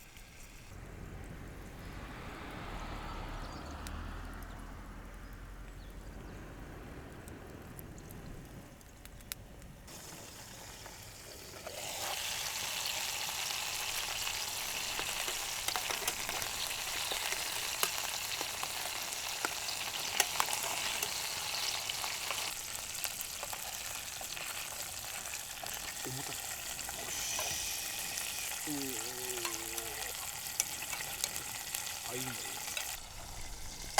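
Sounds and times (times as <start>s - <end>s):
food sizzling in a pan: 0.0s - 0.8s, 9.9s - 33.9s.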